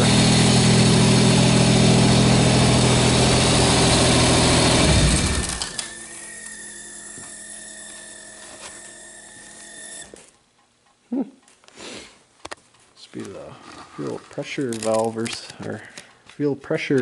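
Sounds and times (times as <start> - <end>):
car engine running: 0.0 - 5.8
high squealy whine: 2.1 - 10.1.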